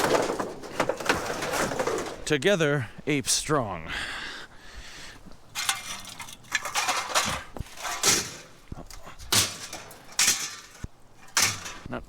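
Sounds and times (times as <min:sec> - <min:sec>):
metal clanks and scrapes: 0:00.0 - 0:02.4, 0:05.5 - 0:12.0.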